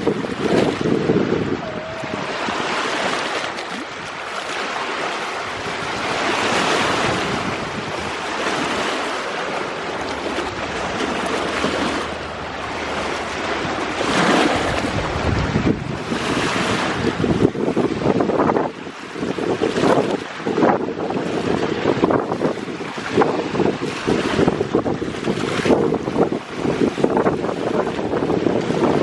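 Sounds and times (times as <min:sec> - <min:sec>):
surf waves breaking: 0:00.0 - 0:29.0
wind buffeting microphone: 0:00.0 - 0:29.0.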